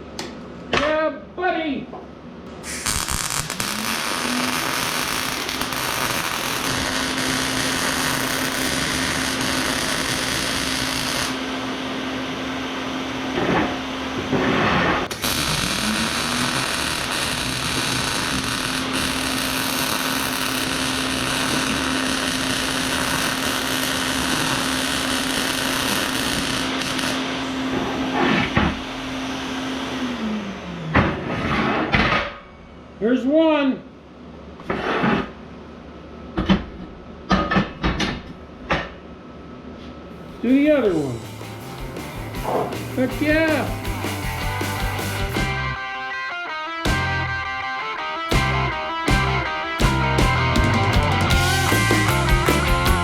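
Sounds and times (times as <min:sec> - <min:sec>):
electric power tool motor running: 0:02.9 - 0:11.6, 0:15.1 - 0:28.0, 0:48.3 - 0:53.0.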